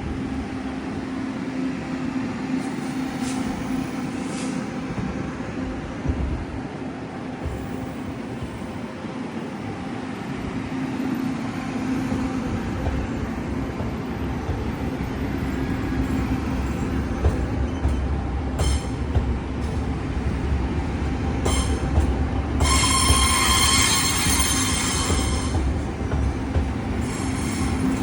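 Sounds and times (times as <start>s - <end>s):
train rumbling on rails: 0.0s - 28.0s
high metallic squeals: 22.6s - 25.6s, 26.9s - 28.0s.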